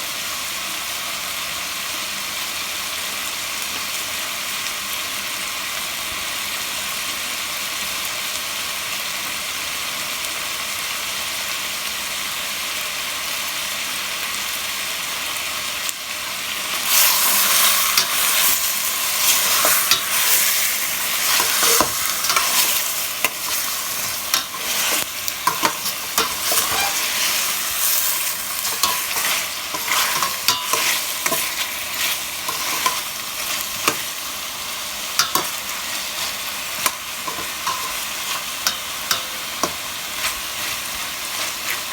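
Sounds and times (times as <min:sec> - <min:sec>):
chicken sizzling in oil: 0:00.0 - 0:41.9
clicks and scrapes of stirring: 0:17.4 - 0:34.1.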